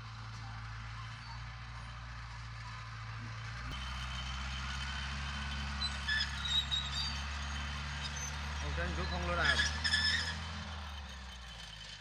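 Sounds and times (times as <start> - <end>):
heavy diesel machinery engine: 0.0 - 12.0
short high squeaks: 5.6 - 12.0.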